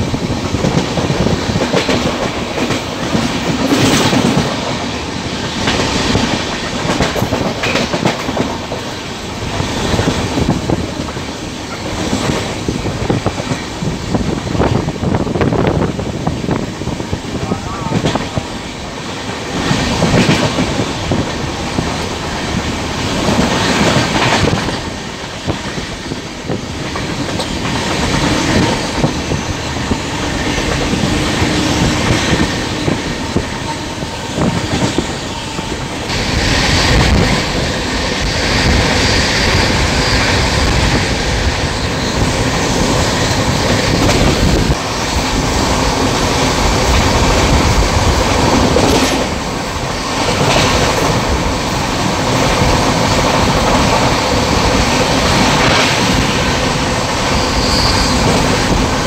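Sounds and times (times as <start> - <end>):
train running noise inside coach: 0.0 - 59.0
wheels clicking over rail joints: 5.5 - 13.7.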